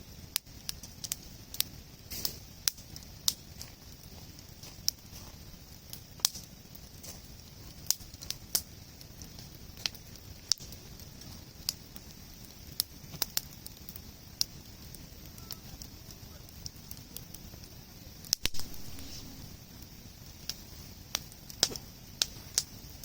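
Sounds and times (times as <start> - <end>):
campfire crackling and popping: 0.0 - 23.0
low steady rumble: 18.4 - 20.5.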